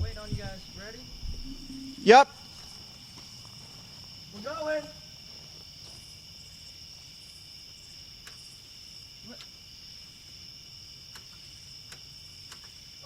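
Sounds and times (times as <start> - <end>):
crickets chirping: 0.0 - 13.0
insect chorus with high-pitched drone: 0.0 - 13.0
faint clicks: 11.1 - 12.8.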